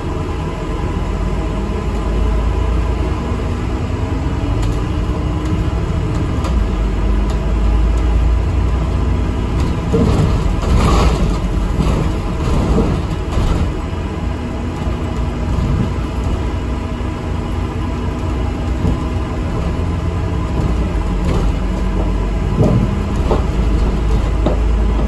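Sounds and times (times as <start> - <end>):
bus engine and road rumble: 0.0 - 25.0
rattling and knocking: 9.4 - 14.2, 18.5 - 25.0.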